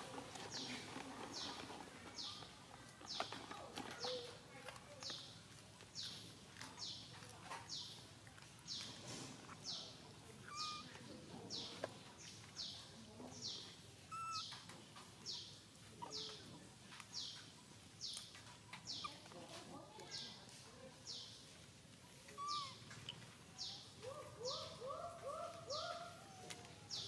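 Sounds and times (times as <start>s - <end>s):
bird chirping: 8.7s - 19.4s, 22.2s - 27.0s.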